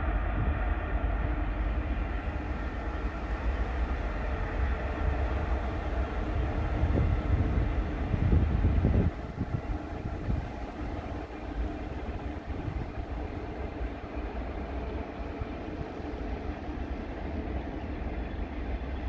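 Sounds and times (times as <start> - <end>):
steady locomotive hum: 0.0 - 19.0
train wheels rumbling on rails: 0.0 - 19.0.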